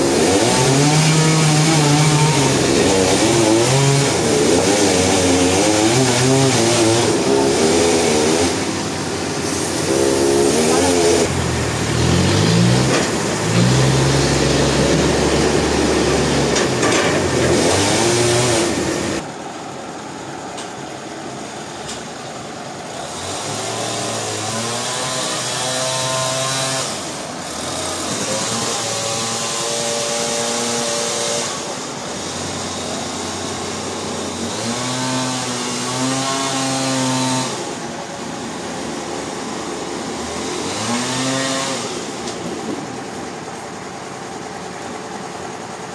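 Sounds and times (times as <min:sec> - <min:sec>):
engine revving: 0:00.0 - 0:19.3, 0:23.1 - 0:43.1
broad rushing noise: 0:00.0 - 0:24.2.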